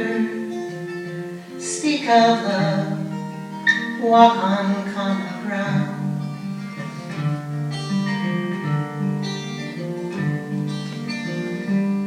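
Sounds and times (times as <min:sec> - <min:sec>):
acoustic guitar playing: 0:00.0 - 0:12.0.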